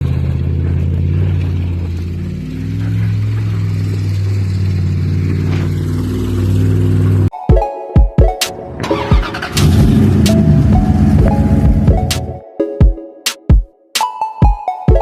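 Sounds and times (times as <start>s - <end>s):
pickup truck engine running: 0.0s - 7.3s, 8.8s - 12.3s.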